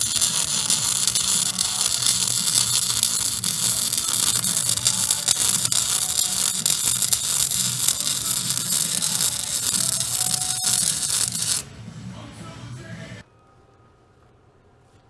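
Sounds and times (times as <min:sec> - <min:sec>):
welding arc crackling: 0:00.0 - 0:11.7.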